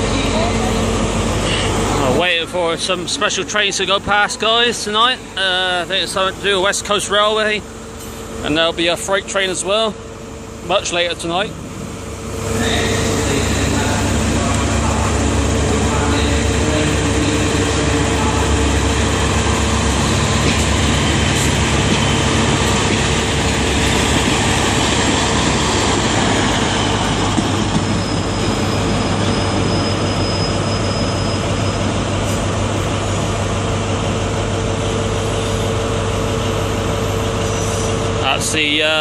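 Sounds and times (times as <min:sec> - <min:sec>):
diesel train engine running: 0:00.0 - 0:39.0
wheels rumbling on track: 0:00.0 - 0:39.0
high wheel squeal: 0:12.4 - 0:33.1.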